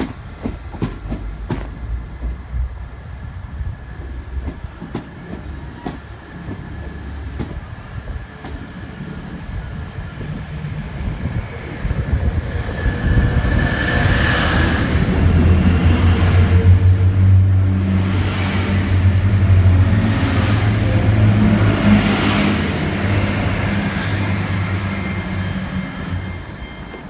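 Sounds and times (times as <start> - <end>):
train wheels rushing on rail: 0.0 - 27.0
diesel engines droning: 13.8 - 27.0.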